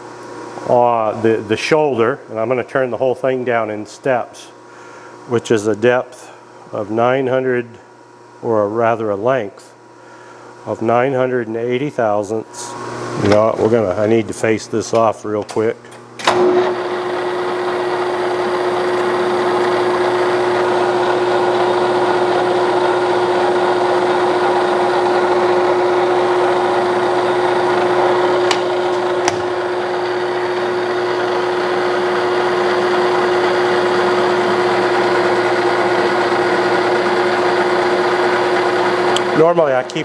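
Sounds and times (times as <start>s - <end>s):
metal lathe whining: 16.3s - 40.0s.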